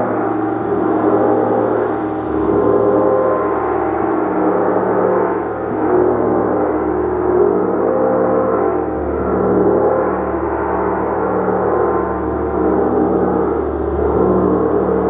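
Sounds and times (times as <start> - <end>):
gong ringing: 0.0 - 7.2.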